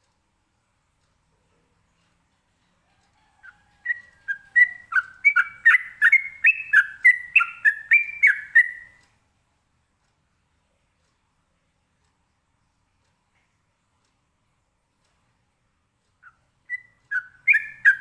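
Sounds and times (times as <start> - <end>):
bird singing whistled notes: 3.4 - 9.0, 16.2 - 18.0.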